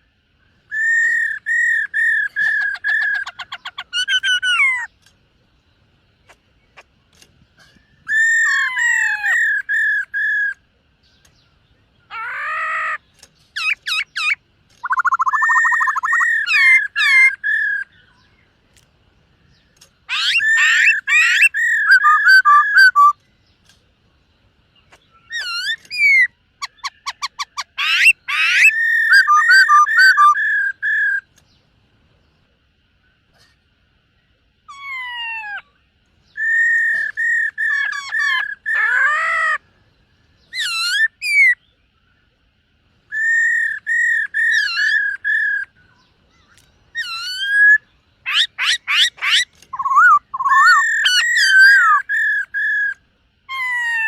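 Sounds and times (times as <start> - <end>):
bird singing whistled phrases: 0.7 - 4.9, 13.6 - 18.4, 20.1 - 23.2, 25.1 - 31.3, 36.2 - 39.5, 43.1 - 54.0.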